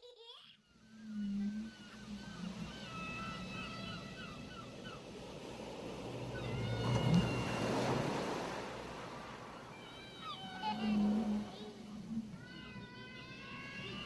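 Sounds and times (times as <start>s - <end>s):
gulls calling: 0.2s - 14.0s
wave breaking on shore: 1.0s - 14.0s.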